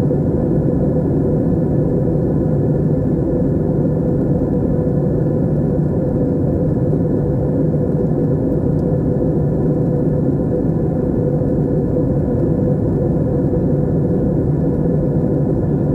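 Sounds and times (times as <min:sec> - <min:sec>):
airliner cabin drone: 0:00.0 - 0:15.9.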